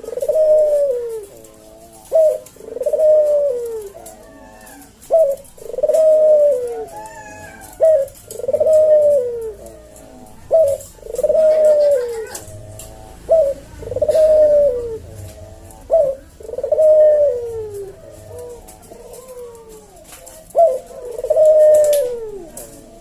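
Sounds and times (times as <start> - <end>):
dove cooing: 0.0 - 23.0.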